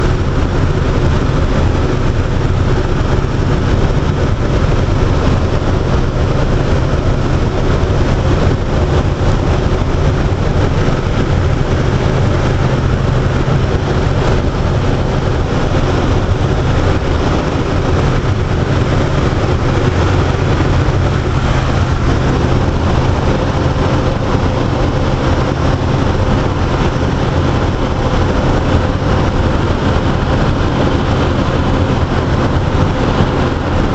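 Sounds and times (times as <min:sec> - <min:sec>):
aircraft engine and propeller drone: 0:00.0 - 0:33.9.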